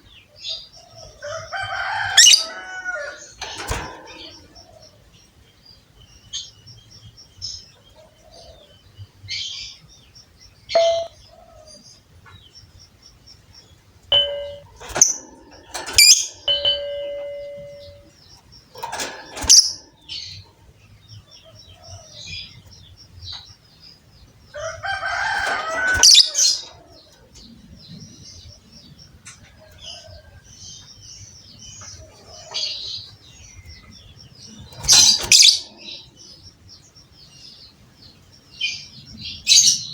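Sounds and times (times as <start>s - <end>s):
lovebirds chirping and chattering: 0.0s - 39.9s
bird whistled notes: 10.8s - 11.1s.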